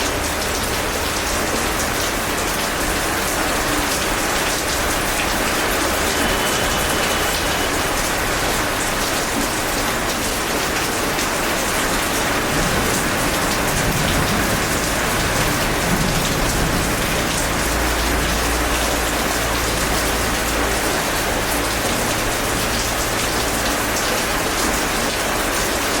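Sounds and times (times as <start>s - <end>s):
heavy rain pattering: 0.0s - 26.0s.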